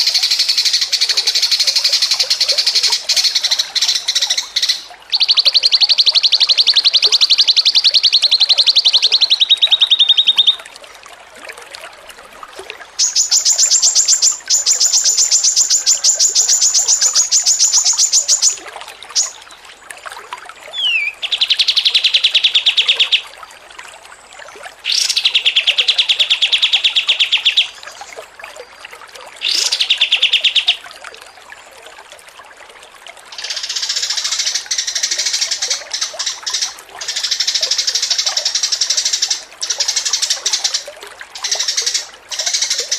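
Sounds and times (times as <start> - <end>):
songbird trilling: 0.0 - 10.6, 13.0 - 19.4, 20.7 - 23.2, 24.9 - 28.1, 29.4 - 30.8, 33.4 - 40.8, 41.4 - 42.9.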